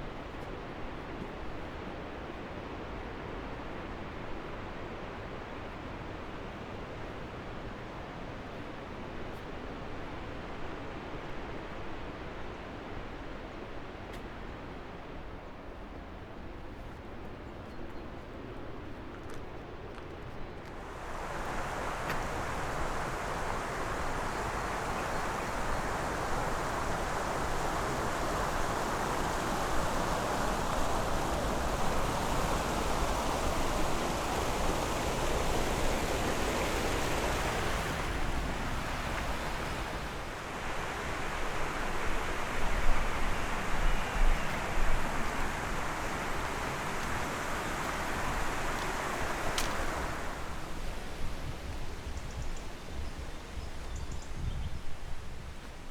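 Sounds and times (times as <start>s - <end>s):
fast-flowing water rushing: 20.7s - 51.7s.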